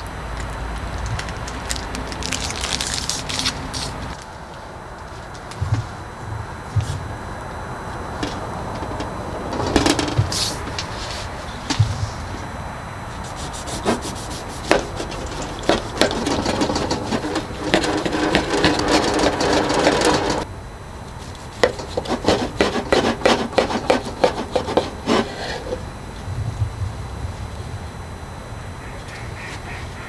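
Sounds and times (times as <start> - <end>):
scattered knocks: 8.2 - 10.9, 14.6 - 20.5, 21.6 - 25.3
rubbing and scraping: 13.1 - 20.5, 21.2 - 25.8
sharp clicks and knocks: 14.6 - 20.5.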